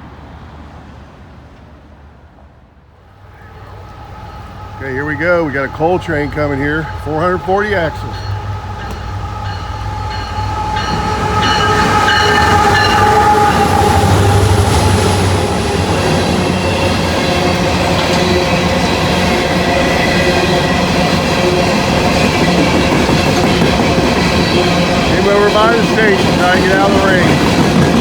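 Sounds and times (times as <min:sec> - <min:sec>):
diesel locomotives rumbling: 0:00.0 - 0:28.0
train cars rolling on rails: 0:00.0 - 0:28.0
steady high tones ringing: 0:03.4 - 0:14.5.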